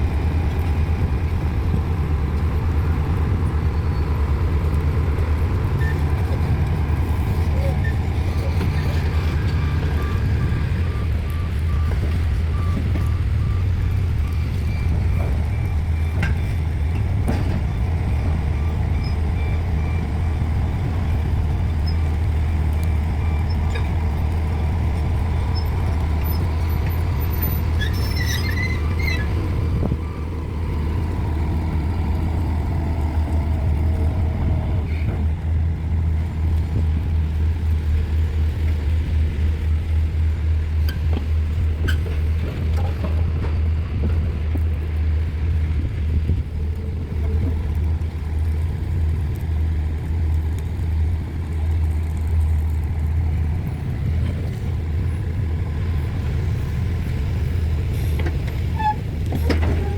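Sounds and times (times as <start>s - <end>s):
heavy diesel engine rumbling: 0.0s - 59.9s.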